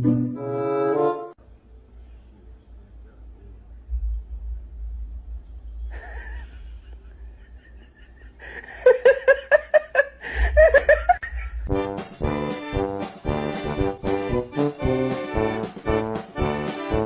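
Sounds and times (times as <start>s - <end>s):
music: 0.0s - 1.4s, 11.7s - 17.0s
person laughing hard: 5.9s - 11.9s.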